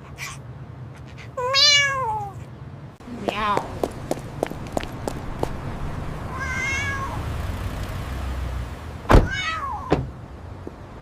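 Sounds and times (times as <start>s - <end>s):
kitten meowing: 1.1s - 2.5s, 6.3s - 7.2s, 9.3s - 9.9s
steady low hum: 2.5s - 6.5s.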